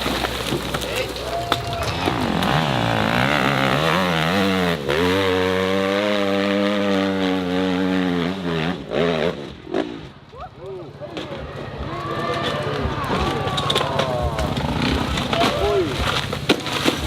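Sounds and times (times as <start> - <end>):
dirt bike engine revving: 0.0 - 10.2, 11.7 - 16.3.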